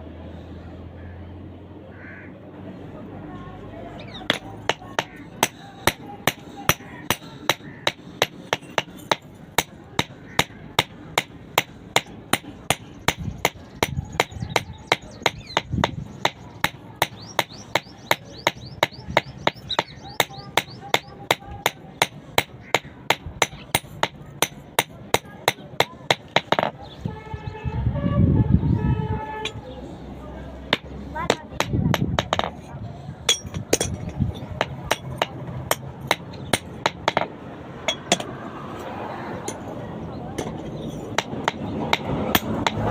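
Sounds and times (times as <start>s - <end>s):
hammer striking metal: 4.3s - 26.8s, 30.7s - 32.7s, 33.3s - 38.3s.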